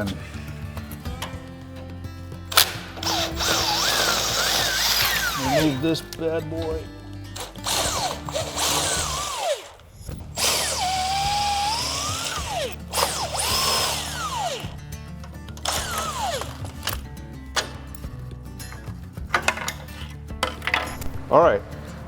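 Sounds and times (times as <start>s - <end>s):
power drill whining: 2.4s - 15.0s, 15.6s - 17.9s.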